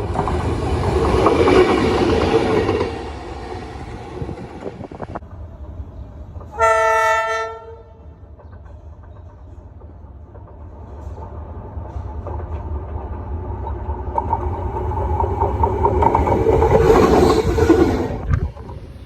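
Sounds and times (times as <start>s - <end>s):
diesel locomotive approaching: 0.0s - 19.0s
train wheels on rails: 0.0s - 19.0s.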